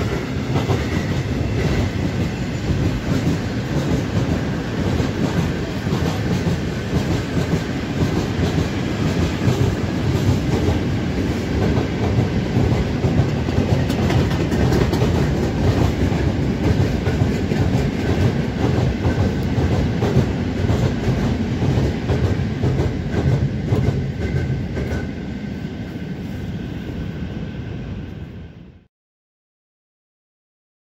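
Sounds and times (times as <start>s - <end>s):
freight train rumbling past: 0.0s - 28.9s.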